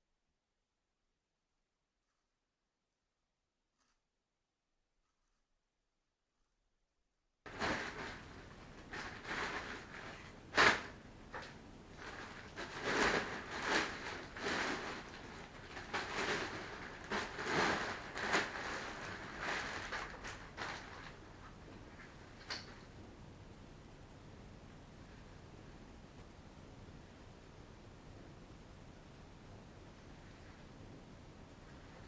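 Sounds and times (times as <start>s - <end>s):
packaging rustling and crinkling: 7.5s - 22.7s.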